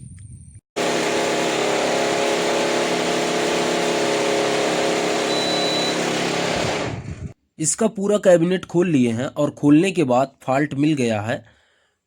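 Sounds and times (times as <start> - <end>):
air conditioner blower buzzing: 0.8 - 7.2.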